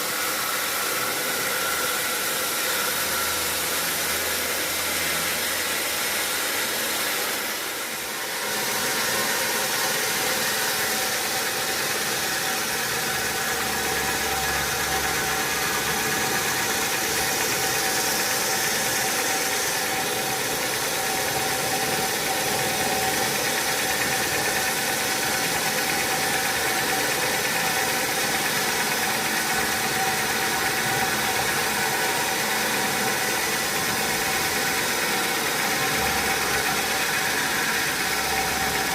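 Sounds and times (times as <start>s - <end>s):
sawmill machinery whining: 0.0s - 38.9s.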